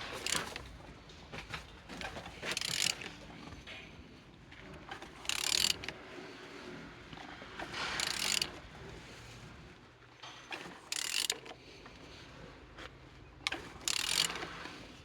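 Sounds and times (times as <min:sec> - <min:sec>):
engine clicking and ratcheting: 0:00.0 - 0:00.8, 0:01.5 - 0:03.3, 0:05.0 - 0:06.0, 0:08.0 - 0:08.6, 0:10.6 - 0:11.6, 0:13.4 - 0:14.6.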